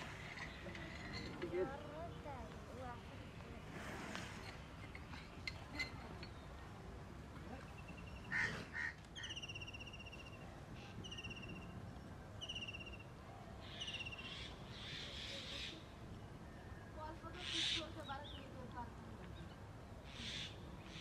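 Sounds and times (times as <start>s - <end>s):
high buzzy bird calls: 7.8s - 16.0s, 20.0s - 21.0s.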